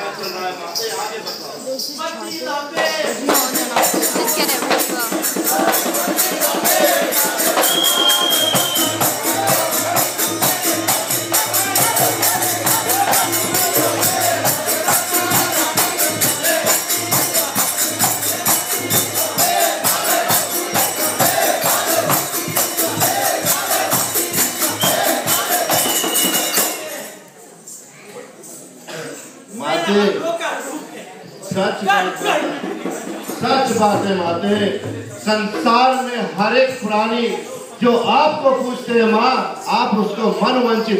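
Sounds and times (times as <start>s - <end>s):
jingling metal cymbals: 0.0s - 40.9s
fast percussion dance music: 1.8s - 27.0s, 31.6s - 36.0s
drums: 2.8s - 27.0s, 32.2s - 35.9s.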